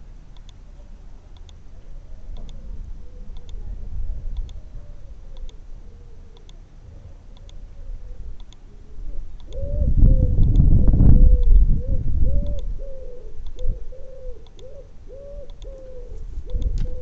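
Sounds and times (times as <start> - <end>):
pigeon cooing: 1.7 - 17.0
wind rumble on microphone: 1.7 - 17.0
faint sharp ticks: 6.4 - 6.6, 8.4 - 8.7, 9.4 - 9.7, 10.4 - 10.8, 12.4 - 12.7, 13.4 - 13.7, 14.4 - 14.7, 15.4 - 15.9, 16.5 - 17.0.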